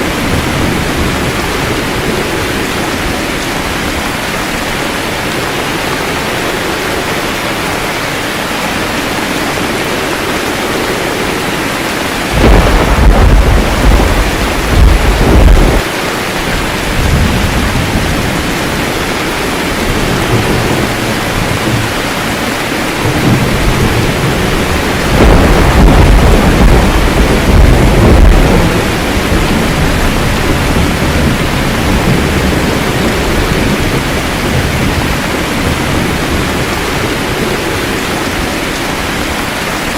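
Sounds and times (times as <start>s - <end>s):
steady rain: 0.0s - 39.9s
thunder rolling: 9.3s - 39.0s.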